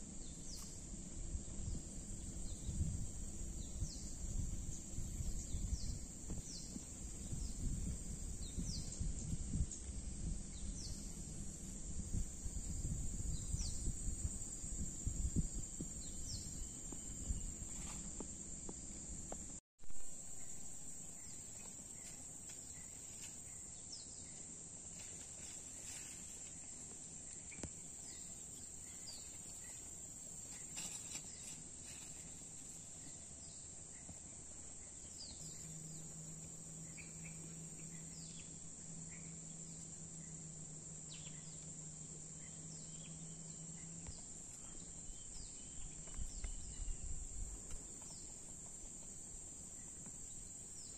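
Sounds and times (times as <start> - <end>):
insects chorus: 0.0 - 50.9.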